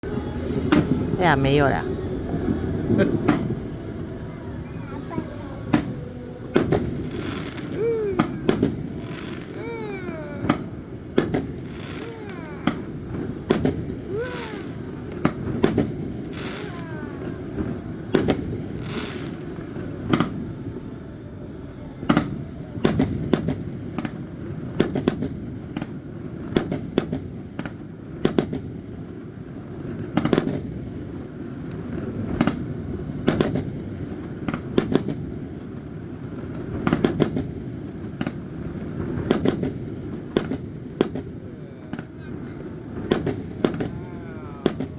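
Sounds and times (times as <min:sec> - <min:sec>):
crackling rumble: 0:00.0 - 0:27.5
fireworks bangs: 0:00.0 - 0:44.9
whistling firework shells: 0:00.1 - 0:24.2, 0:36.8 - 0:44.9.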